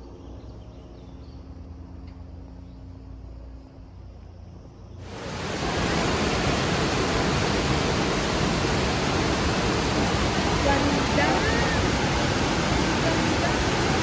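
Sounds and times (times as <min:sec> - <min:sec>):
waterfall rushing: 0:05.0 - 0:14.0.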